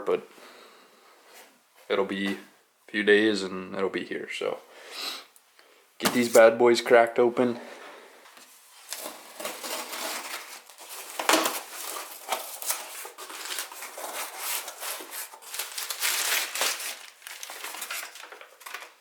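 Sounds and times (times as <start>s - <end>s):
packaging crinkling and tearing: 8.8s - 19.0s
sharp rip of wrapping: 8.9s - 18.2s.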